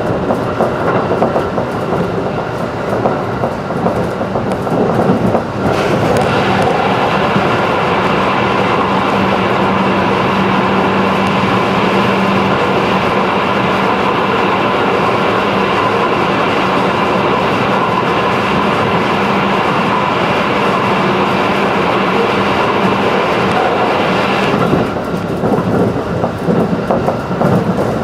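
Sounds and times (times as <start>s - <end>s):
train wheels rumbling: 0.0s - 28.0s.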